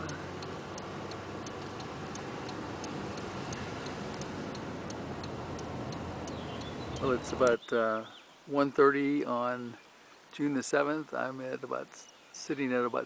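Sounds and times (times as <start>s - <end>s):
turn signal clicking: 0.0s - 7.6s
vehicle engine hum: 0.0s - 7.6s.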